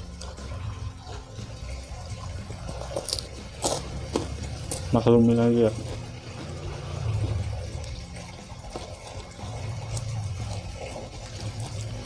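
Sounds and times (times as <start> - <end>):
water running: 0.0 - 12.0
chewing leaves: 2.6 - 5.1, 5.7 - 12.0.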